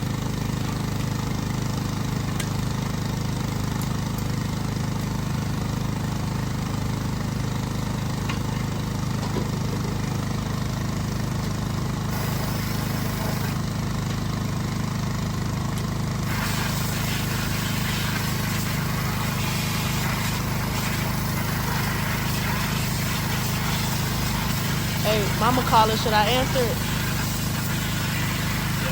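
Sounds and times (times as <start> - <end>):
tractor engine idling: 0.0 - 28.9
hiss: 12.1 - 13.6, 16.2 - 28.9.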